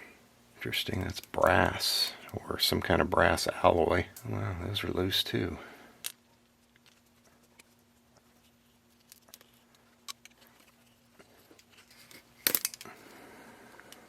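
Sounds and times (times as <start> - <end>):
faint steady hum: 0.0 - 14.0
small metal parts clicking: 9.0 - 11.0, 11.6 - 13.0.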